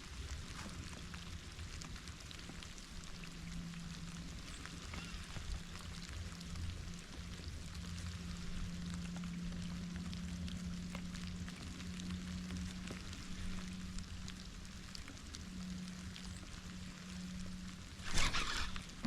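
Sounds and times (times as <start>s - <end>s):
steady low hum: 0.0s - 19.0s
steady rain falling: 0.0s - 19.0s.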